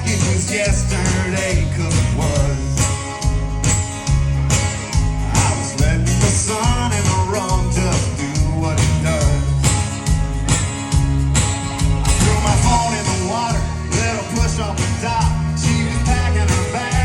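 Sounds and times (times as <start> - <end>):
man singing: 0.0 - 3.0, 5.2 - 9.8, 12.0 - 17.0
bass guitar: 0.0 - 17.0
electric guitars: 0.0 - 17.0
steady drum beat: 0.0 - 17.0.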